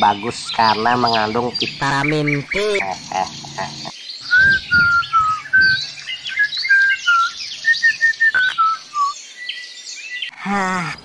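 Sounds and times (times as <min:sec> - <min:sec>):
faint high twittering: 0:00.0 - 0:10.4
songbird whistled notes: 0:04.2 - 0:10.3.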